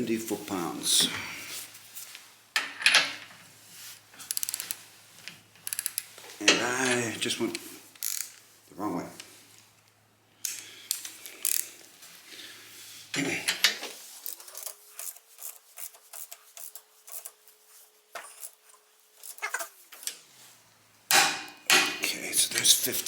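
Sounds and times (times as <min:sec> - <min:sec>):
torque wrench metal clicks: 0:04.3 - 0:04.8, 0:05.7 - 0:06.1, 0:08.0 - 0:08.4.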